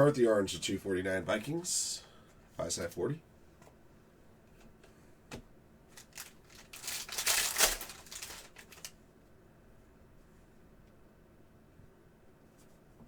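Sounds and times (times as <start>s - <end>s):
cards rustling and sliding: 6.0s - 8.9s.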